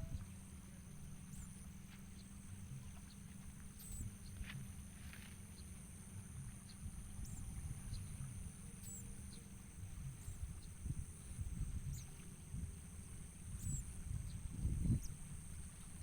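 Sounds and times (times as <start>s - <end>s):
small bird chirps: 8.8s - 9.5s, 13.6s - 15.2s.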